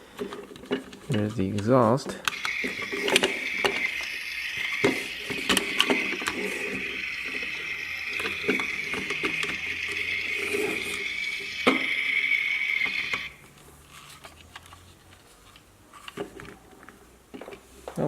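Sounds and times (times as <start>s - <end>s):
plastic toy clicks and knocks: 0.2s - 13.3s
steady high hiss: 1.7s - 13.5s.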